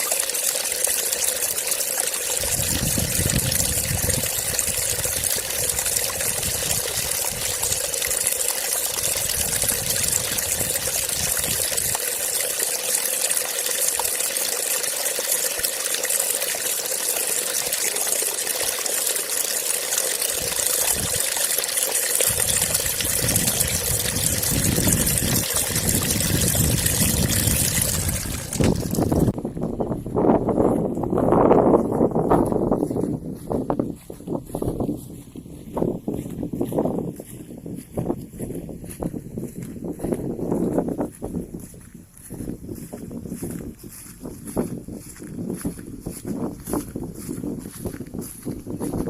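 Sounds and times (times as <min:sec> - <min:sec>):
trickle of flowing water: 0:00.0 - 0:29.4, 0:31.8 - 0:49.0.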